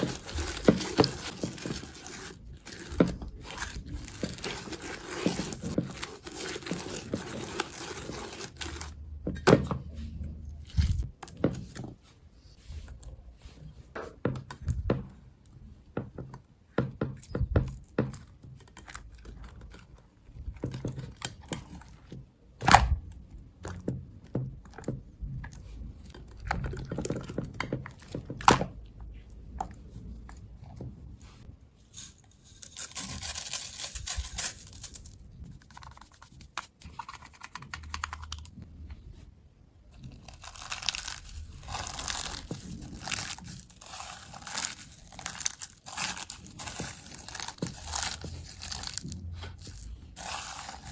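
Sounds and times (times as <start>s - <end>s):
slime crackling: 39.9s - 50.9s.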